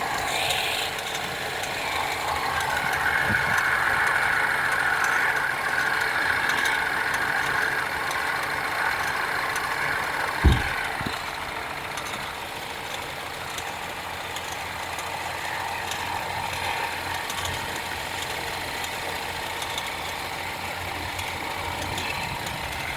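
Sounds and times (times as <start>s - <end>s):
car engine idling: 0.0s - 22.9s
belt tensioner ticking: 0.1s - 22.9s
sharp thump: 10.4s - 11.3s.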